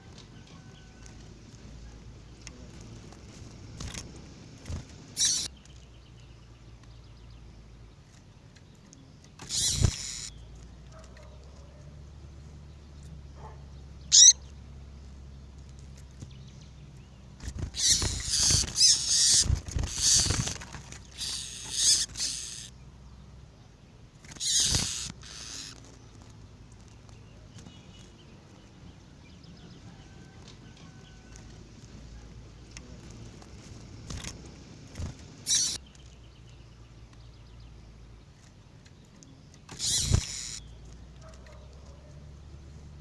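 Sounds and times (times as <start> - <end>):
low steady hum: 0.0 - 24.4
rustling in a cage: 17.3 - 22.7.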